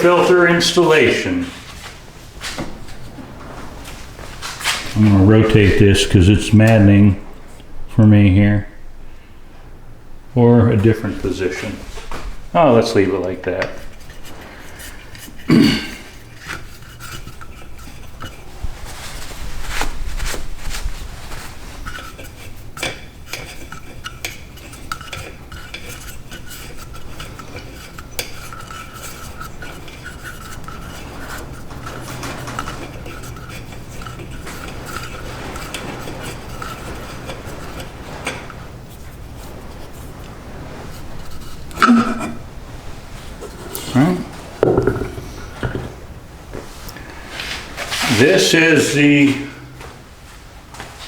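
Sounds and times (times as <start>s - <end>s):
hard parts clicking and clattering: 21.8s - 40.0s, 44.6s - 46.0s.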